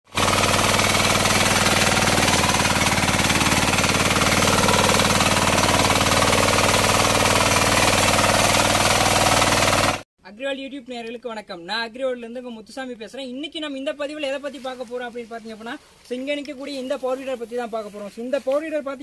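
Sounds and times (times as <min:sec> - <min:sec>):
diesel engine running at high revs: 0:00.1 - 0:10.0.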